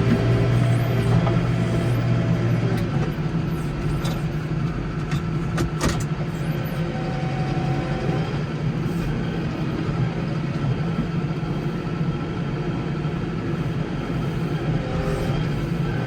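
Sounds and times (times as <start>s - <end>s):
garden tractor engine running: 0.0s - 5.6s.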